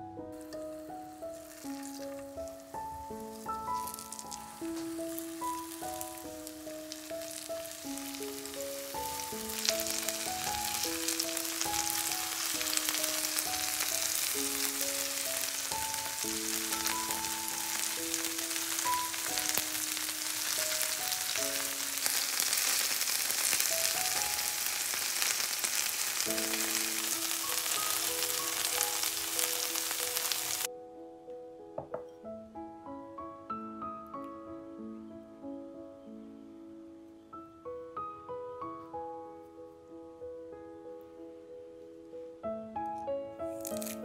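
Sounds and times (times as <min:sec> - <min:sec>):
background music with held notes: 0:00.0 - 0:44.0
patties sizzling in oil: 0:00.4 - 0:30.7, 0:43.5 - 0:44.0.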